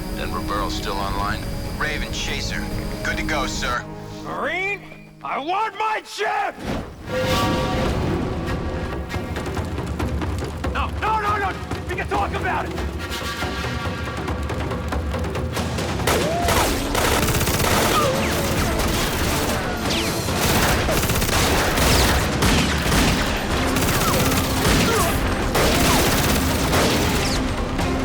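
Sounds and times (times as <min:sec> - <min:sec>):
film score music: 0:00.0 - 0:28.0
rapid gunfire: 0:15.4 - 0:28.0.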